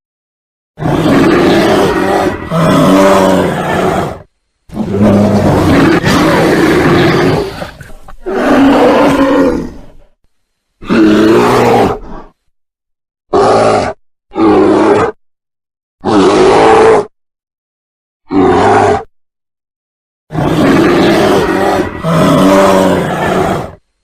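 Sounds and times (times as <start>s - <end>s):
bear roaring and growling: 0.8s - 10.2s, 10.8s - 12.5s, 13.3s - 15.2s, 16.0s - 17.1s, 18.3s - 19.1s, 20.3s - 23.8s.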